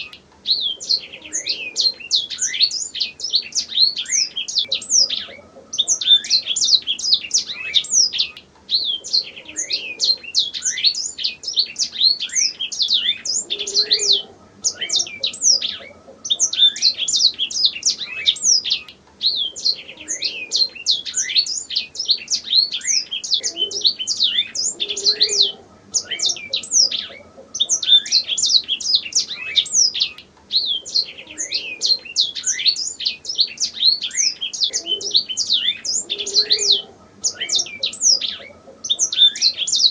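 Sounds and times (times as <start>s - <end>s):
canary singing chirps and trills: 0.0s - 39.9s.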